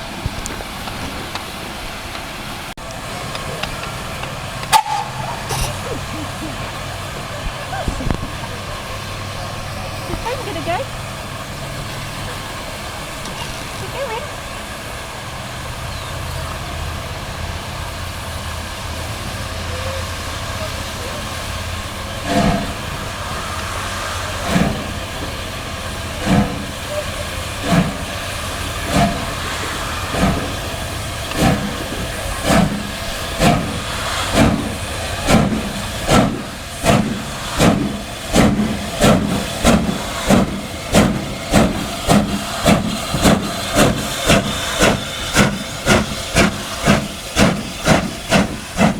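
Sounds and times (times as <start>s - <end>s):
locomotive exhaust beats: 0.0s - 48.9s
steam hissing: 0.0s - 48.9s
low rumble: 3.0s - 12.6s.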